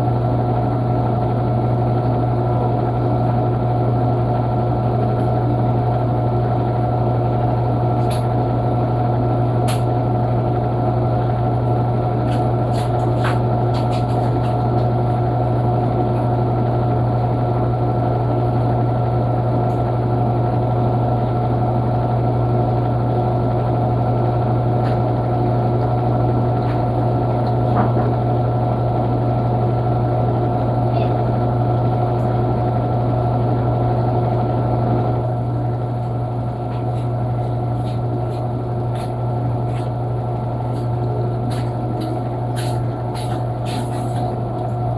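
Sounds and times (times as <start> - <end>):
washing machine motor hum: 0.0 - 44.9.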